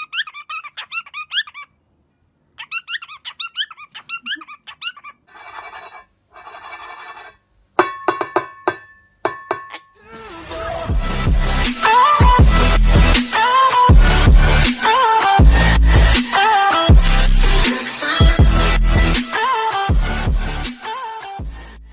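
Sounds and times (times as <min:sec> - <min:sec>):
bird chirping: 0:00.0 - 0:01.8, 0:02.5 - 0:07.0.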